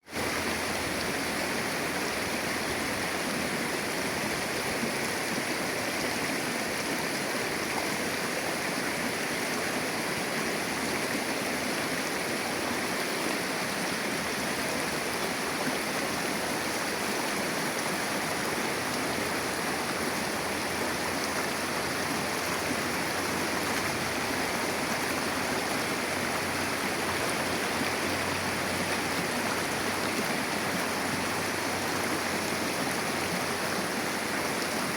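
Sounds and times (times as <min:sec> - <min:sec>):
river water flowing: 0:00.0 - 0:34.9.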